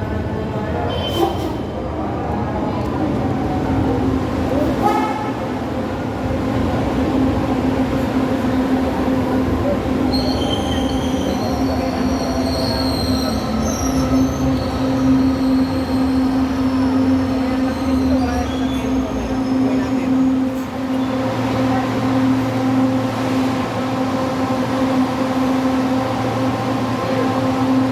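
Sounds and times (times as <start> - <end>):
train wheels squealing on rails: 10.0 - 21.4.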